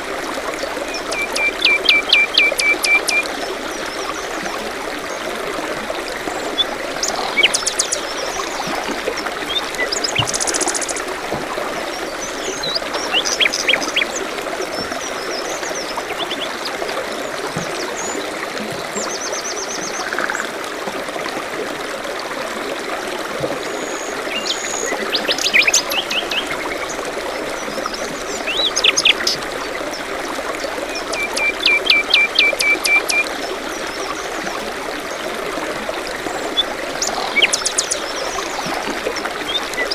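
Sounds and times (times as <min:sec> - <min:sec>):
stream trickling: 0:00.0 - 0:39.9
songbirds singing: 0:00.7 - 0:05.2, 0:06.3 - 0:11.1, 0:11.8 - 0:16.9, 0:23.7 - 0:30.1, 0:30.9 - 0:34.4, 0:36.3 - 0:39.9.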